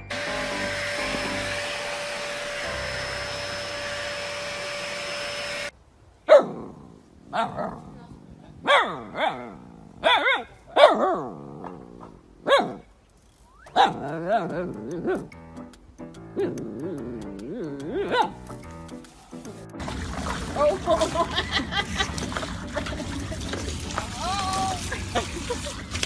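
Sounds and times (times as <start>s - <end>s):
appliance motor hiss and whine: 0.0s - 5.7s.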